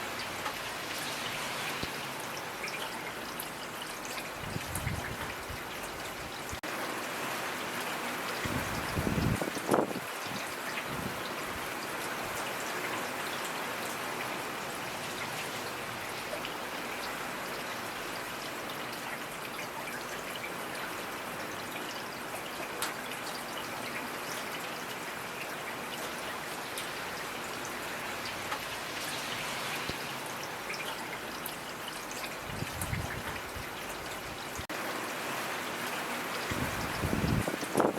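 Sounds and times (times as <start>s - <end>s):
raindrops ticking close by: 0.0s - 6.8s, 8.2s - 37.9s
steady rainfall: 0.0s - 37.9s.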